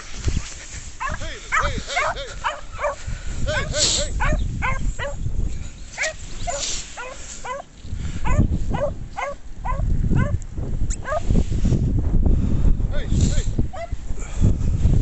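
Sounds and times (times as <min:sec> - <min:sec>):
wind rumbling on microphone: 0:00.0 - 0:15.0
dog yelping: 0:01.0 - 0:03.0, 0:03.6 - 0:05.2, 0:06.0 - 0:10.4, 0:11.0 - 0:11.2.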